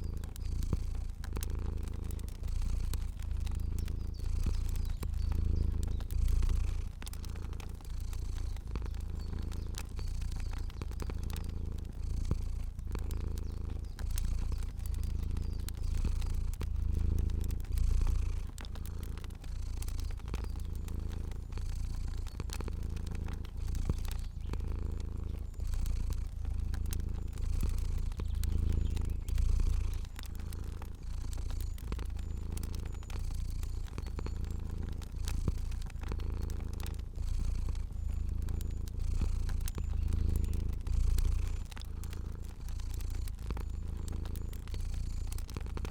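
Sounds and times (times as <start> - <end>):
cat purring: 0.0 - 45.9
fire crackling: 0.0 - 45.9.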